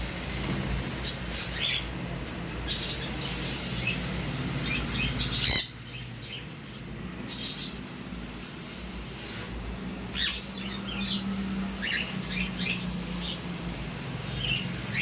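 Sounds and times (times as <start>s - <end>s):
parrot chirping softly: 4.6s - 6.5s, 10.1s - 13.4s
parrot squawking: 4.9s - 5.8s, 10.1s - 11.2s.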